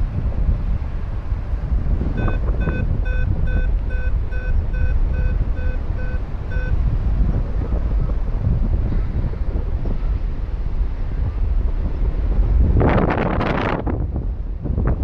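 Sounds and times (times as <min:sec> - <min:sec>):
wind noise on microphone: 0:00.0 - 0:15.0
variometer beeping: 0:02.0 - 0:07.0.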